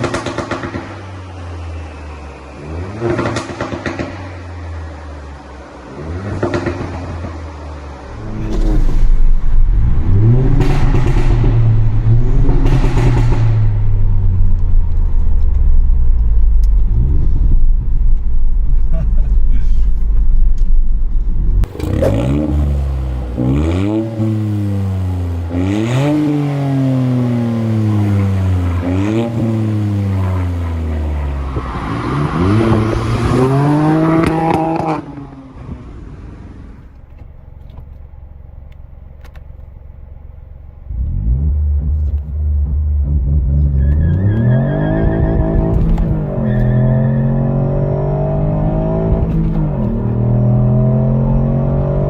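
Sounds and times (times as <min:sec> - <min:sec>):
car engine revving: 0:05.8 - 0:35.7, 0:40.8 - 0:52.0.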